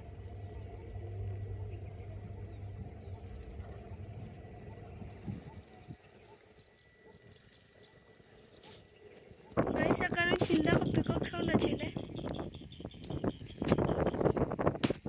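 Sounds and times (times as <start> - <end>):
low steady rumble: 0.0 - 15.0
bird trilling: 9.4 - 14.6.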